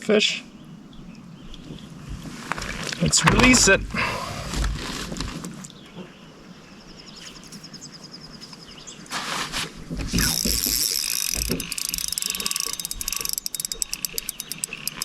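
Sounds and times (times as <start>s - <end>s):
fishing reel ratcheting clicks: 10.2s - 15.0s.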